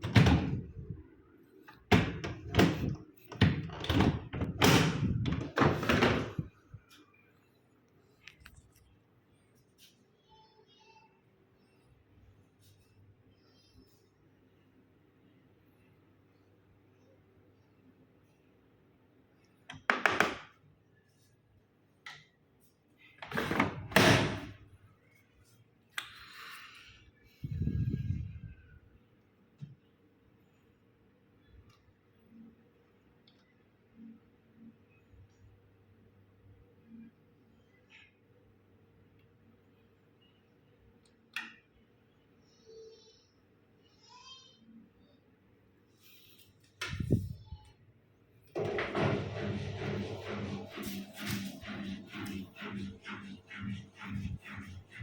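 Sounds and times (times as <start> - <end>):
washing machine door clacking: 0.0 - 0.7, 1.9 - 6.5, 48.6 - 52.4
loud clatter: 48.6 - 55.0.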